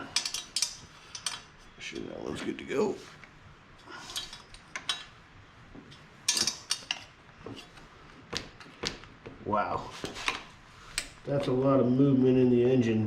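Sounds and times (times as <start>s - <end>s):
metal clinks and knocks: 0.0s - 1.8s, 4.0s - 5.2s, 5.9s - 7.7s.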